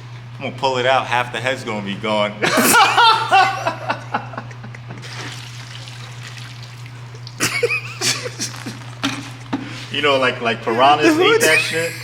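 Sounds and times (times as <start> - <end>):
steady low hum: 0.0 - 12.0
liquid trickling and dripping: 5.2 - 7.4.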